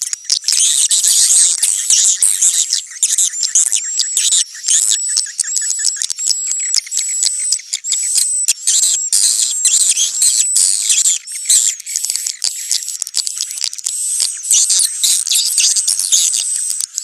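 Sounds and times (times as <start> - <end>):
swiftlets twittering: 0.5 - 17.0
rapid bird clicks: 11.6 - 17.0.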